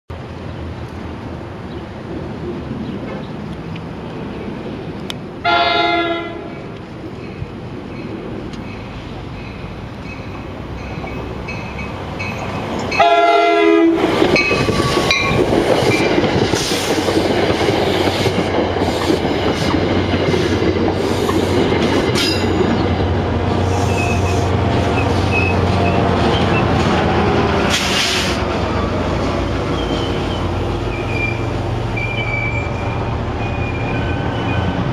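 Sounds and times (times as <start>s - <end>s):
train rumble and wheel clatter: 0.1s - 34.9s
locomotive horn blast: 5.4s - 6.5s, 13.0s - 14.0s
wheel squeals: 23.7s - 26.8s, 29.7s - 34.9s.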